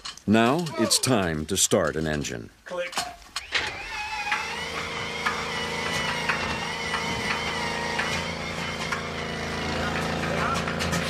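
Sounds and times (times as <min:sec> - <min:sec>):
radial engine cranked by starter: 0:03.4 - 0:11.0.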